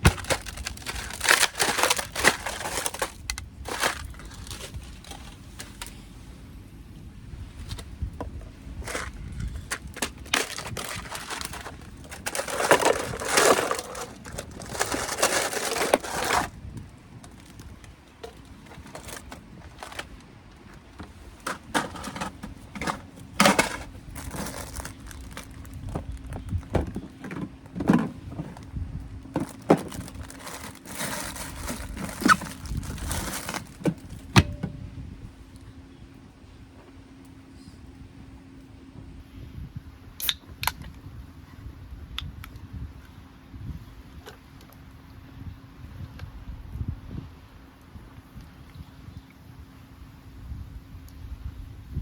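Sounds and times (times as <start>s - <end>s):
rustling and crinkling: 0.0s - 6.2s, 7.4s - 34.9s
faint steady hum: 0.0s - 52.0s
knocks and clicks of handling: 33.2s - 34.8s.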